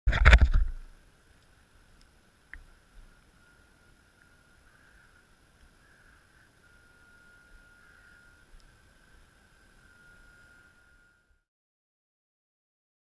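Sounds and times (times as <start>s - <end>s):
faint high whine: 0.1s - 11.5s.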